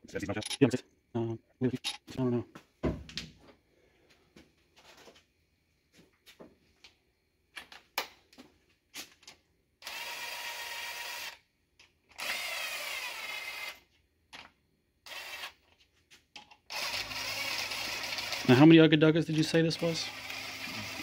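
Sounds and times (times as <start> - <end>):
clicks and clatter of parts: 1.7 - 2.2, 9.0 - 9.4, 14.3 - 14.6, 15.6 - 16.7
cordless power tool spinning bolts: 9.8 - 11.4, 12.1 - 13.8, 15.0 - 15.6, 16.7 - 18.7, 19.4 - 21.0.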